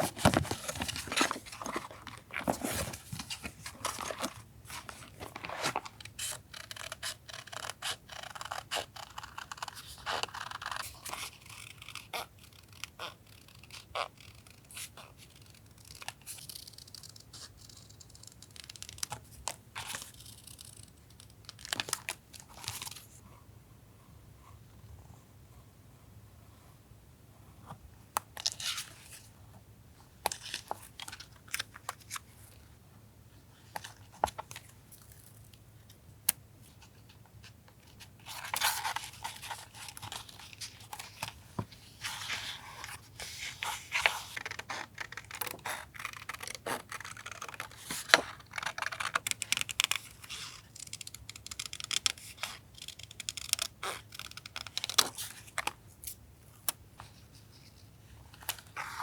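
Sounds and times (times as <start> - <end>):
paper crinkling and rustling: 0.0 - 6.9.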